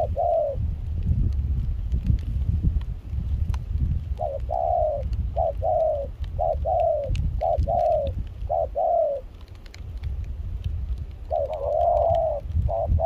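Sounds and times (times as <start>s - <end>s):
dove cooing: 0.0s - 0.6s, 4.2s - 9.6s, 11.2s - 13.0s
steady low rumble: 0.0s - 8.6s.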